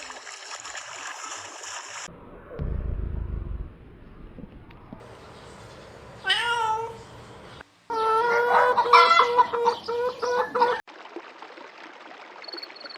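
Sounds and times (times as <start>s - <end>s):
cat meowing: 6.2s - 7.0s.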